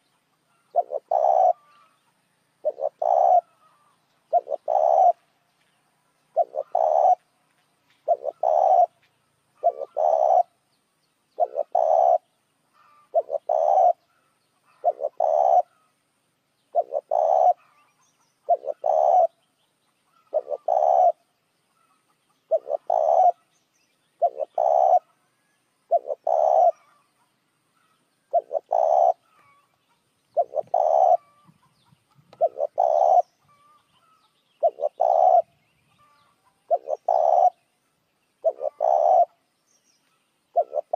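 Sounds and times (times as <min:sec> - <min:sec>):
dove cooing: 0:00.6 - 0:02.0, 0:02.6 - 0:05.2, 0:06.3 - 0:07.2, 0:08.0 - 0:09.0, 0:09.6 - 0:10.6, 0:11.4 - 0:15.9, 0:16.7 - 0:19.4, 0:20.1 - 0:21.3, 0:22.4 - 0:23.5, 0:24.2 - 0:25.2, 0:25.8 - 0:27.1, 0:27.8 - 0:29.7, 0:30.3 - 0:31.6, 0:32.2 - 0:37.7, 0:38.4 - 0:39.4, 0:40.5 - 0:40.9.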